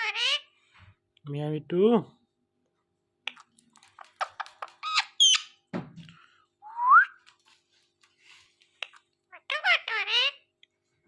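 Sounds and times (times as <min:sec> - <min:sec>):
parrot squawking: 0:00.0 - 0:00.5, 0:04.2 - 0:05.6, 0:09.3 - 0:10.5.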